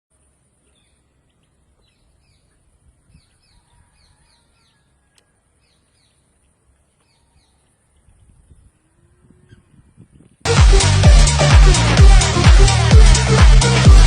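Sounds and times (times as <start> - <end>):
small birds chirping: 0.1 - 10.4.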